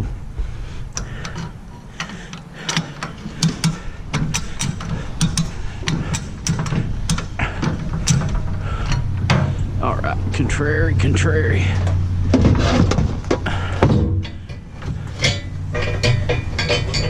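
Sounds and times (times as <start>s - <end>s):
steady low hum: 0.0s - 17.0s
sharp clicks and light knocks: 0.9s - 9.6s.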